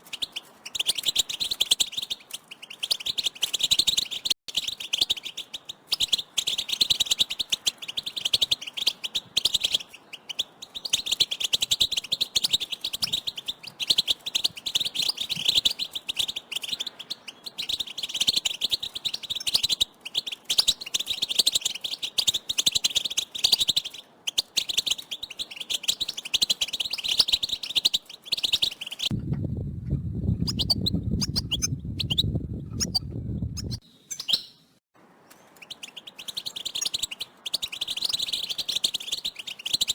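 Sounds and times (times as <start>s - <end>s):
low buzzing: 29.1s - 33.8s
goldfinches twittering: 30.5s - 32.2s, 35.5s - 39.9s.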